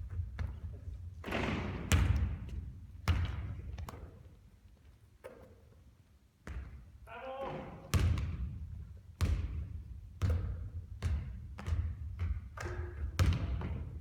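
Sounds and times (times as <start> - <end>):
basketball bouncing on hard floor: 0.0 - 4.3, 6.4 - 6.8, 7.5 - 14.0.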